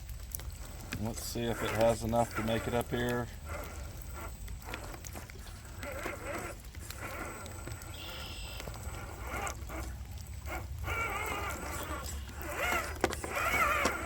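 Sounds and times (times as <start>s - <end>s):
electric motor and gears whining: 0.0s - 14.0s.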